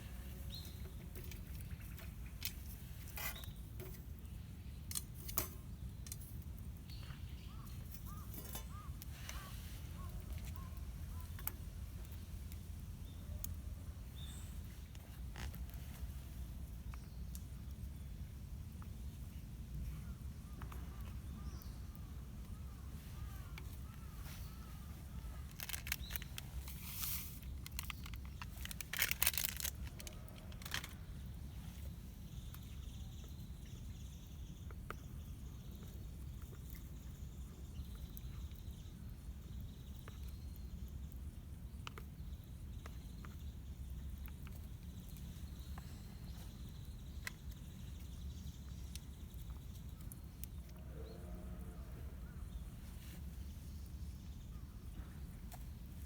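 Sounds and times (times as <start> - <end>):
rustling handling noise: 23.1 - 31.0.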